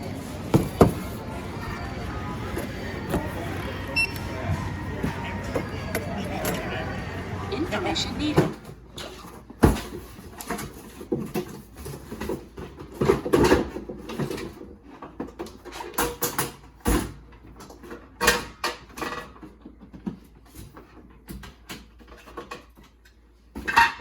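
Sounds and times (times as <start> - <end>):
objects knocking and rattling: 0.0 - 1.4, 8.3 - 24.0.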